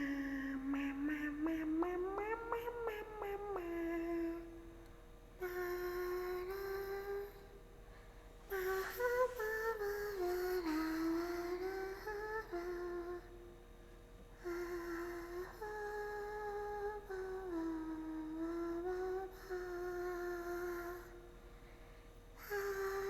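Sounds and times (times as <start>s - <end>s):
woman humming: 0.0s - 7.6s, 8.5s - 13.6s, 14.4s - 21.4s, 22.4s - 23.0s.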